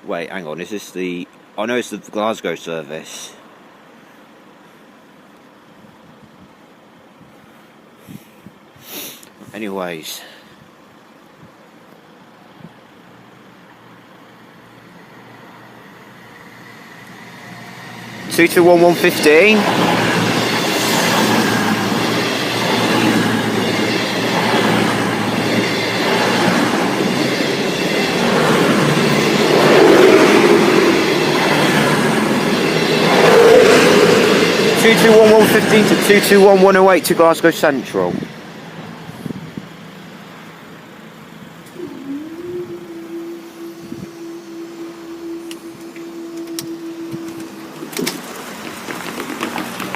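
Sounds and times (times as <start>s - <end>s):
train wheels rumbling on rails: 12.0s - 49.9s
steady mechanical hum: 36.5s - 49.9s.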